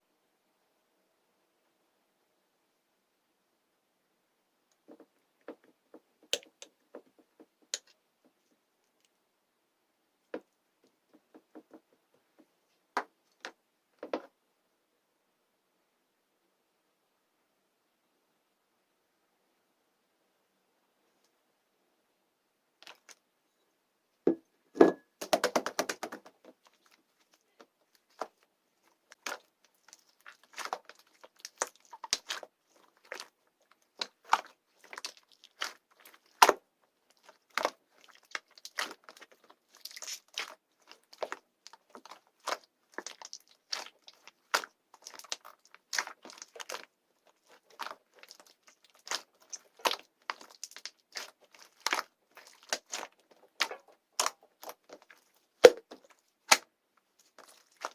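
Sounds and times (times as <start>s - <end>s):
slime crackling and popping: 27.9s - 57.9s.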